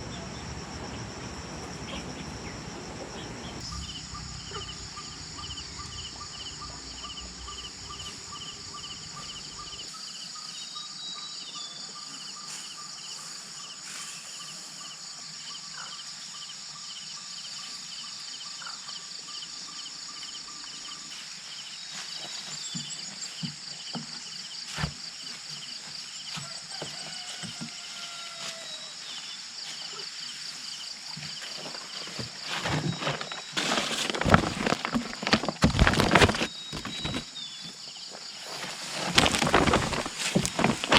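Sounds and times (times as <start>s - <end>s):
insects chirring: 0.0s - 40.9s
rustling and knocking: 31.2s - 37.4s, 38.4s - 40.9s.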